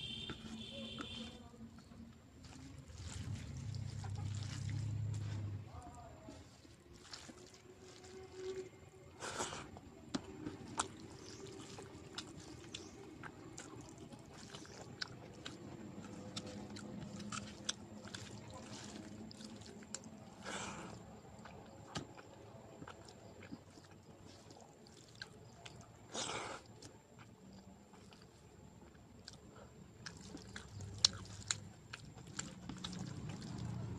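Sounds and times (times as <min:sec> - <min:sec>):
person chewing food: 0:00.0 - 0:33.9.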